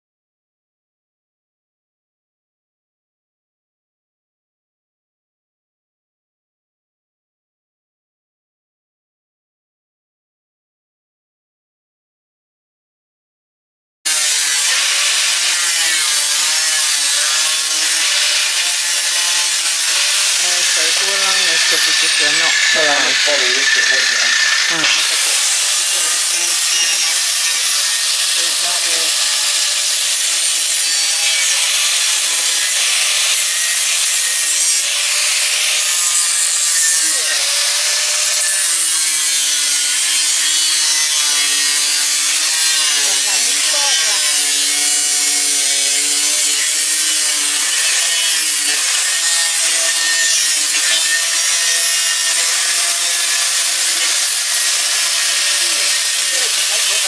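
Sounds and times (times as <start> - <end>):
power tool cutting metal: 14.1 - 57.0.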